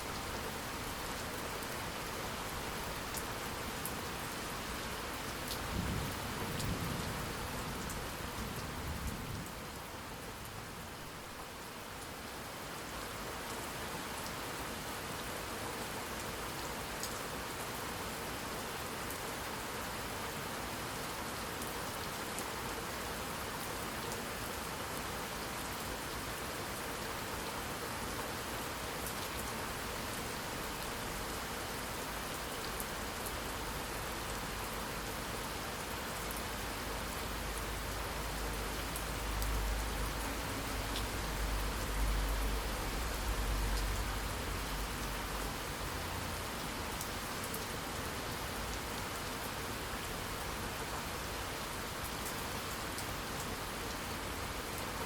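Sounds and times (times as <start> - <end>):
steady rain falling: 0.0 - 55.0
low rumble of thunder: 5.6 - 9.6.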